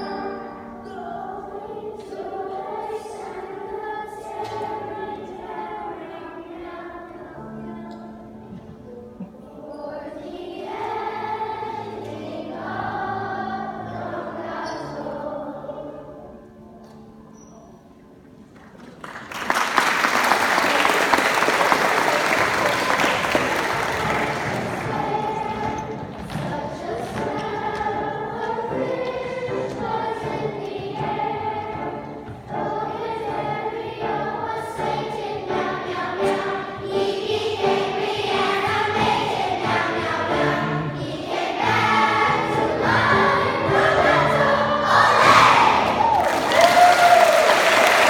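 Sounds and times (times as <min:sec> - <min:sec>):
choir singing: 0:00.0 - 0:16.7, 0:20.2 - 0:48.0
audience applause: 0:18.9 - 0:25.6, 0:45.8 - 0:48.0.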